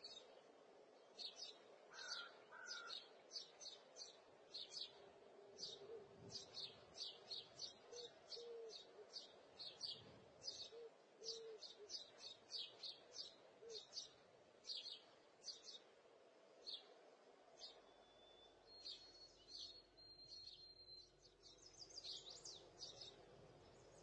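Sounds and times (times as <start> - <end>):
birds chirping faintly: 0.0 - 24.0.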